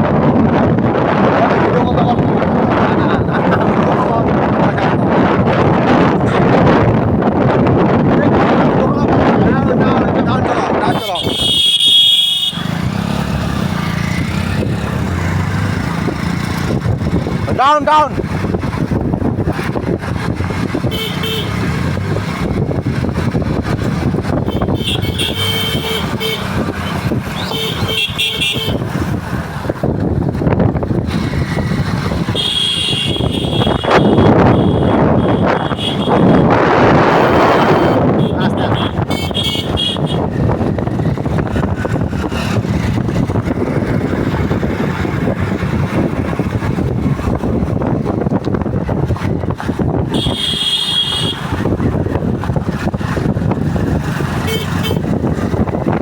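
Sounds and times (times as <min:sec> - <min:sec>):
road traffic noise: 0:00.0 - 0:56.0
vehicle horn honking: 0:10.9 - 0:12.8, 0:20.9 - 0:21.6, 0:24.5 - 0:26.7, 0:27.4 - 0:28.8, 0:32.3 - 0:40.3, 0:50.1 - 0:51.5, 0:54.4 - 0:55.1.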